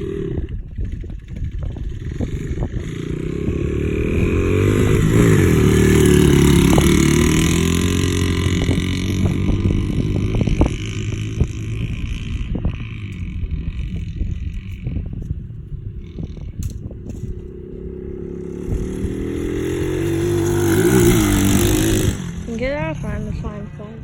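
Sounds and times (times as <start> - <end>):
dirt bike engine passing by: 0.0 - 24.0.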